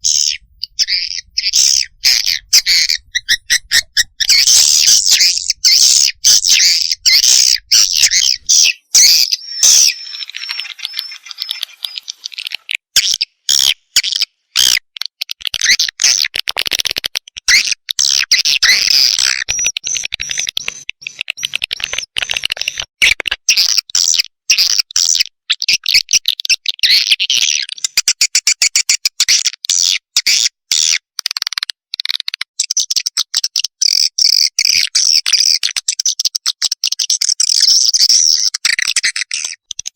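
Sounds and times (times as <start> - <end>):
swiftlet chicks chirping: 0.0 - 13.7, 17.4 - 22.9.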